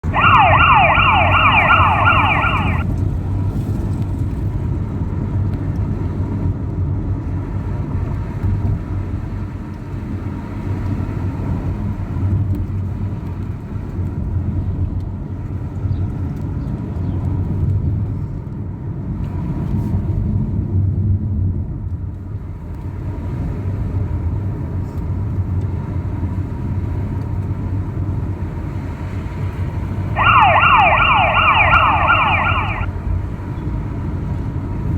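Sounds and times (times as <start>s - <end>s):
fire engine siren yelping: 0.0s - 2.8s, 30.2s - 32.9s
vehicle engine and road rumble: 0.0s - 2.9s, 30.1s - 32.9s.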